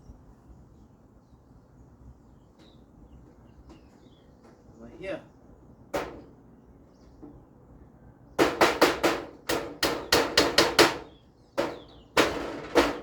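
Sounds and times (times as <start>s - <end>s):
hammer on metal roofing sheet: 5.9s - 6.4s, 8.4s - 13.0s.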